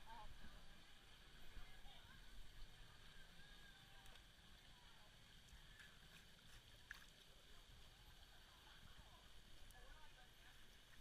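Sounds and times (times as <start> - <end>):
faint ticks: 4.0 - 4.4.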